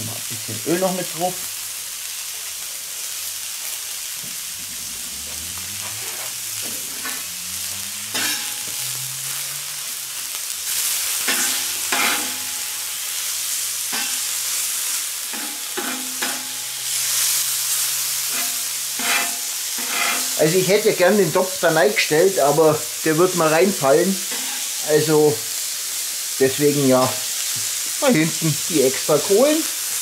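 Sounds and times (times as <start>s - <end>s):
bacon and onions sizzling in oil: 0.0s - 30.0s
metal spatula scraping a plate: 5.8s - 7.3s, 8.1s - 9.0s, 11.3s - 12.7s, 13.9s - 14.4s, 15.3s - 17.3s, 18.2s - 20.4s, 24.3s - 24.9s.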